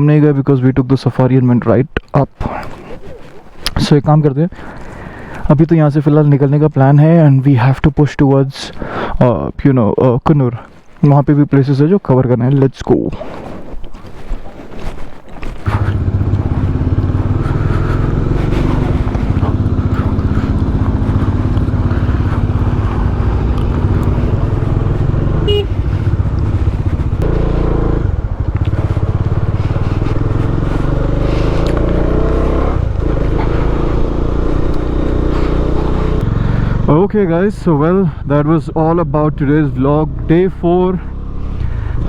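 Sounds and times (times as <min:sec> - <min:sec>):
vehicle engine running: 0:15.7 - 0:42.0.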